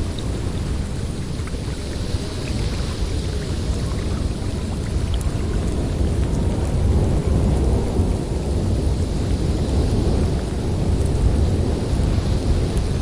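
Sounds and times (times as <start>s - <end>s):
blizzard wind blowing hard: 0.0s - 13.0s.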